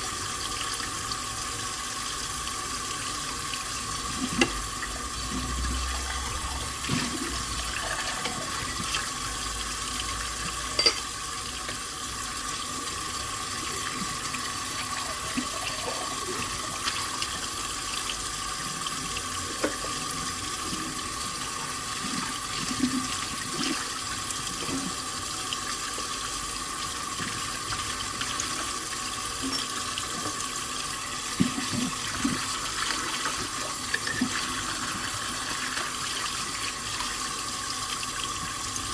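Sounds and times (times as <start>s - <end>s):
tap water running into sink: 0.0s - 38.9s
dishes clinking: 10.7s - 11.1s.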